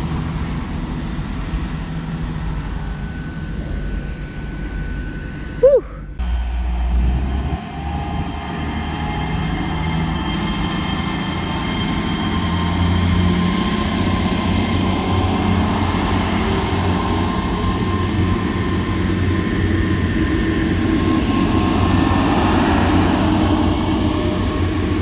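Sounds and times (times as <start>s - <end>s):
train engine drone: 6.3s - 25.0s.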